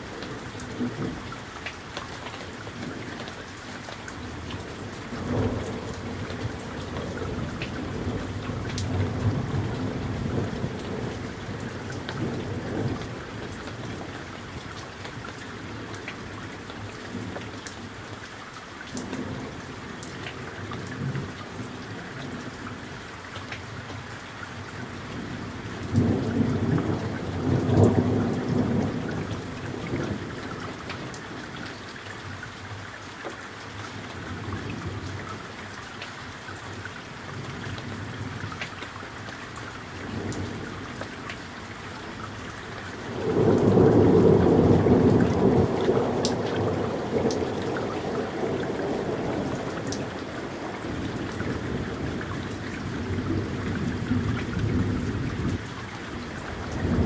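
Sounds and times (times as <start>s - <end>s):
steady rain falling: 0.0s - 57.0s
rolling thunder: 43.1s - 57.0s.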